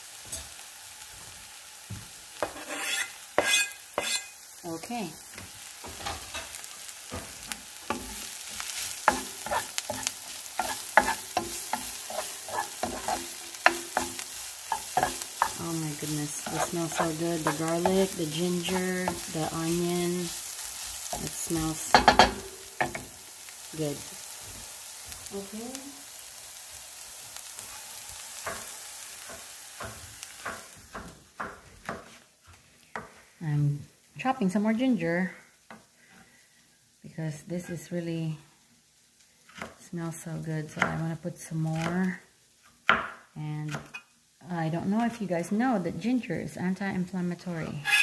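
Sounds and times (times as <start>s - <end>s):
food sizzling in a frying pan: 0.0s - 48.0s
utensil knocking and scraping pan: 2.4s - 4.4s, 9.0s - 20.3s, 21.1s - 23.1s, 47.8s - 48.0s.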